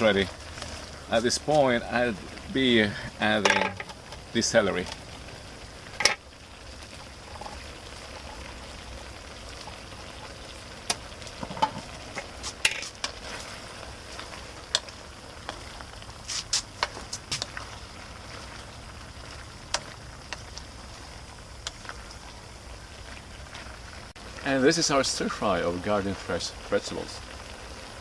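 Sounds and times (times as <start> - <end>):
stir-fry sizzling in a wok: 0.0 - 28.0
spatula scraping a pan: 11.5 - 14.3, 16.2 - 17.6.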